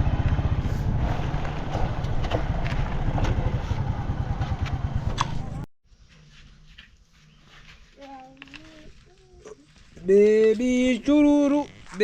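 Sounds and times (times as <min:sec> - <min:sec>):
motorcycle engine running: 0:00.0 - 0:05.7.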